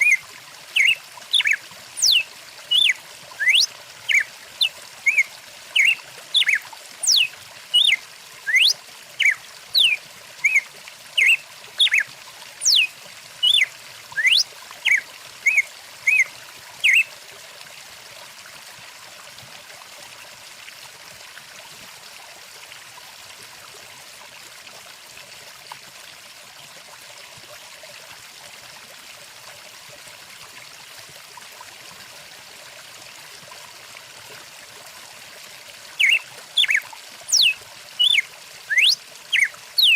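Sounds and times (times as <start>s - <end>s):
stream running: 0.0s - 39.9s
songbird whistling short notes: 14.2s - 16.2s, 36.0s - 39.9s.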